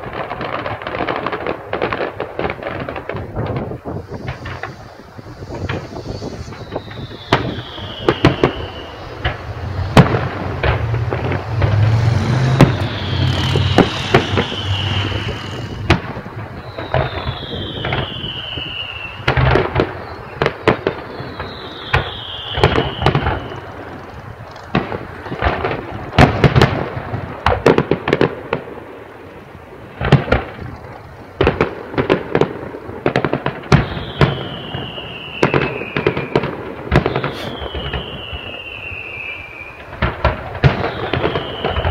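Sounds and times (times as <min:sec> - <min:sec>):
falling whistles of fireworks: 0:00.0 - 0:41.9
fireworks bangs and crackling: 0:00.0 - 0:41.9
low rumble: 0:08.9 - 0:16.6.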